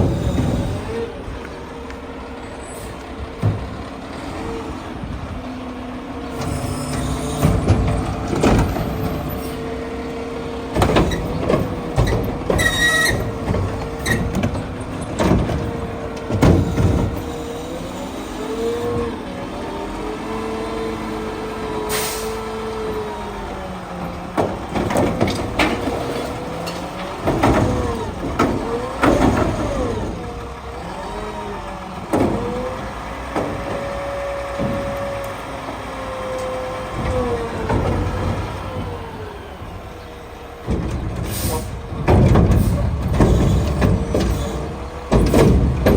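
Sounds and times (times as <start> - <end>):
garbage truck engine whine: 0.0 - 45.9
metal clanks and bangs: 6.4 - 9.8, 10.7 - 17.4, 40.6 - 45.9
air brake hiss: 21.9 - 22.4, 41.3 - 41.7.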